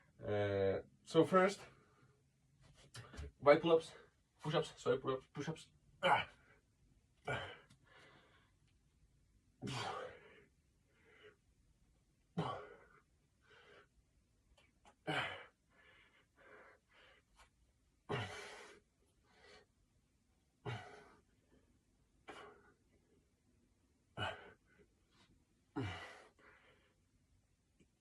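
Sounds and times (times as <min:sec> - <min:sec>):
man breathing hard: 0:07.2 - 0:08.6, 0:09.6 - 0:11.5, 0:12.4 - 0:14.0, 0:15.1 - 0:17.5, 0:18.1 - 0:19.7, 0:20.6 - 0:21.7, 0:24.1 - 0:27.1.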